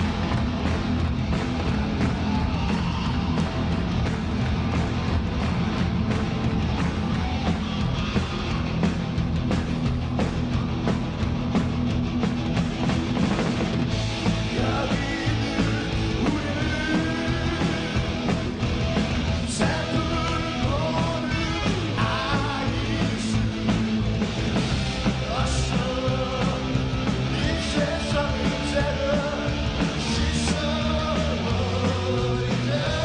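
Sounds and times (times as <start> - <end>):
distorted guitars: 0.0 - 33.0
hard rock band playing: 0.0 - 33.0
man singing lead vocal: 14.4 - 18.3, 19.4 - 23.6, 25.1 - 33.0.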